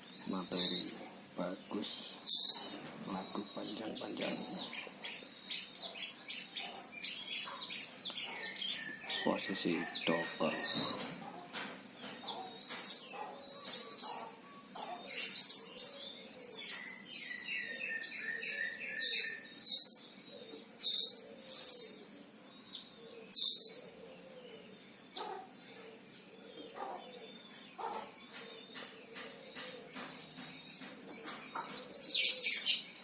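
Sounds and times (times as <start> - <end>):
songbird high-pitched chattering: 0.0 - 11.1, 27.8 - 32.9.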